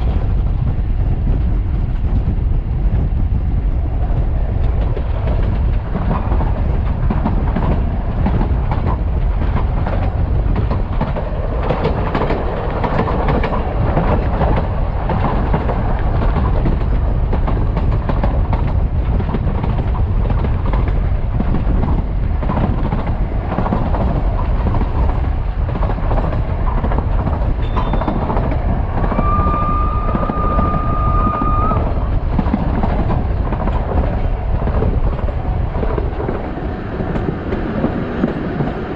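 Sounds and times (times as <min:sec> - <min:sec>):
train wheels rumbling on rails: 0:00.0 - 0:38.9
steam whistle blowing: 0:29.1 - 0:31.9.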